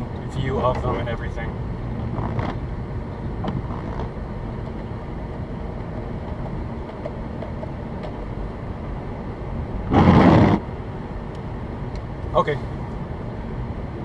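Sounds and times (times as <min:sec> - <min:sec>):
car interior road noise: 0:00.0 - 0:14.0
sudden rush of noise: 0:09.9 - 0:10.7.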